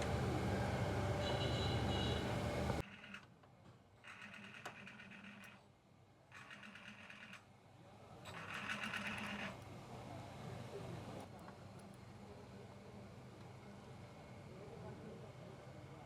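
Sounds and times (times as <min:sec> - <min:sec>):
rapid mechanical buzzing rattle: 0:04.0 - 0:05.6, 0:06.3 - 0:07.5, 0:08.3 - 0:09.6.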